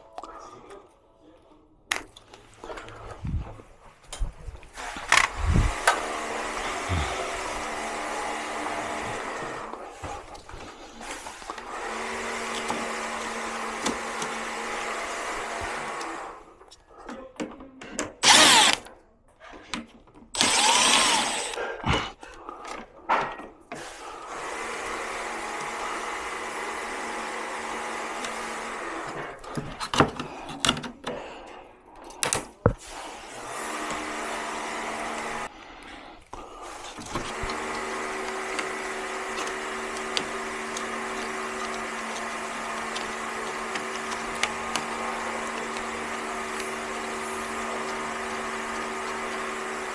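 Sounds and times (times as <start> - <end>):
screws and plastic parts clattering: 4.8 - 7.7, 10.4 - 16.2, 18.2 - 18.8, 20.4 - 21.6, 36.6 - 49.9
cordless drill whirring: 4.8 - 9.8, 11.2 - 16.4, 18.2 - 18.9, 20.3 - 21.6, 24.2 - 29.3, 32.9 - 35.5, 36.7 - 49.9.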